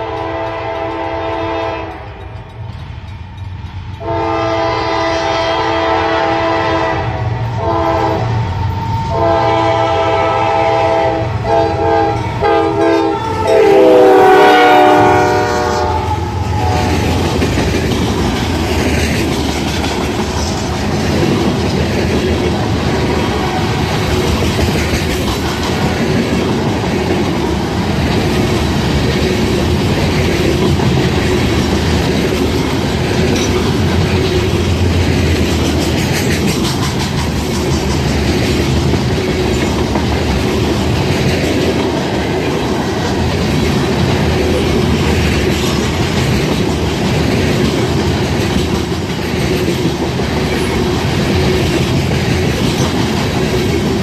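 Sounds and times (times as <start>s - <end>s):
locomotive air horn: 0.0s - 2.2s, 4.0s - 8.4s, 9.1s - 17.0s
train wheels clattering: 0.0s - 5.2s, 11.5s - 54.0s.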